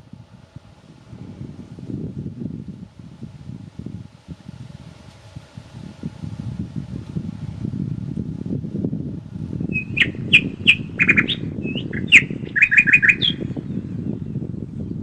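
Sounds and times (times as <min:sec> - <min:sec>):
wind through woods: 0:00.0 - 0:15.0
bird chirping and whistling: 0:09.7 - 0:13.5.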